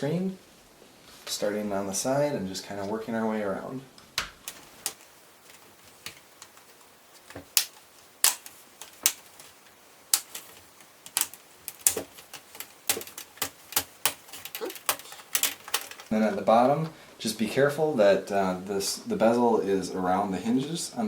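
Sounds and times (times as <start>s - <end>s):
plastic clips snapping and clicking: 4.2s - 16.1s.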